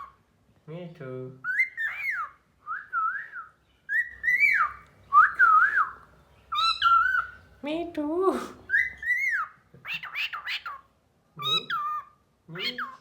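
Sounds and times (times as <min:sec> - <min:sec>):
cockatiel whistling: 0:01.4 - 0:07.4, 0:08.7 - 0:10.8.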